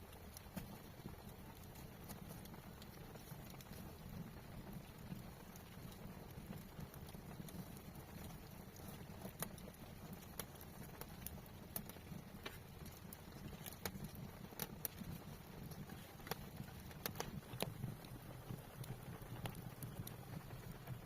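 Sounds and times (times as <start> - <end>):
low steady rumble: 0.0 - 21.0
sharp clicks and light taps: 0.1 - 21.0.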